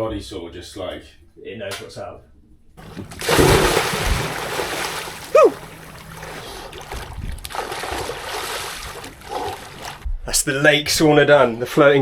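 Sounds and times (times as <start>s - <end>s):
lake water splashing: 2.8s - 10.0s.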